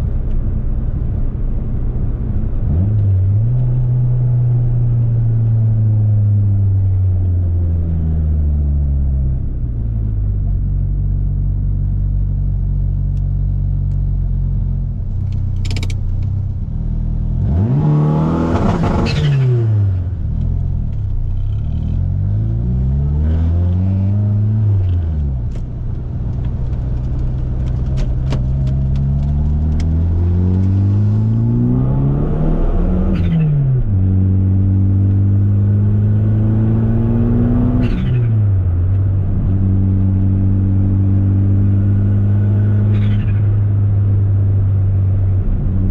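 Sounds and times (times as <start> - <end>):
car engine revving: 15.2 - 45.9.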